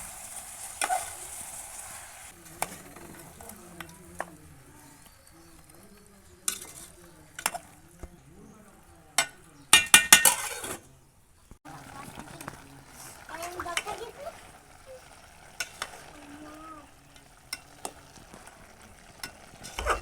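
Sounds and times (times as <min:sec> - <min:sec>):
light sizzle: 0:00.0 - 0:08.0, 0:11.4 - 0:20.0
spoon stirring in pot: 0:00.3 - 0:07.8, 0:09.2 - 0:10.8, 0:11.7 - 0:20.0
spoon knocking against pot: 0:09.2 - 0:10.5.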